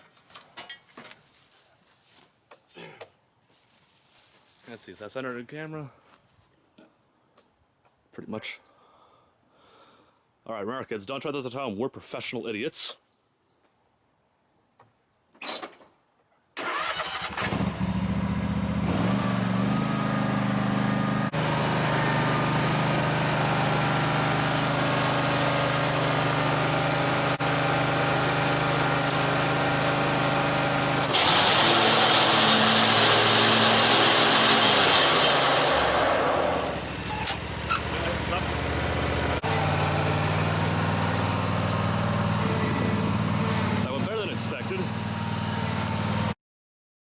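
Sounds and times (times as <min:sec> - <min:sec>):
small petrol engine running: 0:16.6 - 0:46.4.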